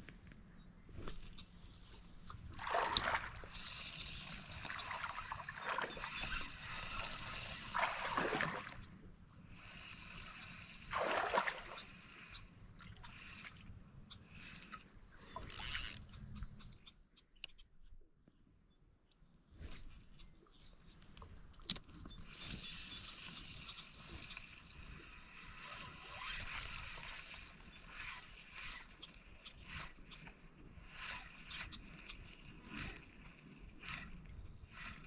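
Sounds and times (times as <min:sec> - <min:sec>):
water sloshing and splashing: 0:02.2 - 0:08.9, 0:10.9 - 0:11.9.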